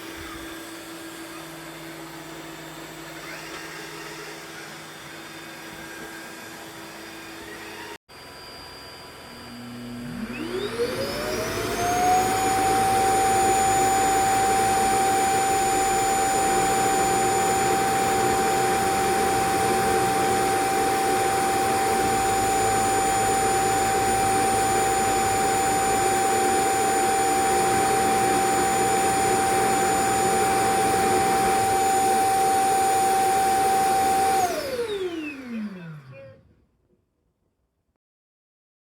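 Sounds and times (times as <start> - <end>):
robot vacuum motor whine: 0.0 - 36.6.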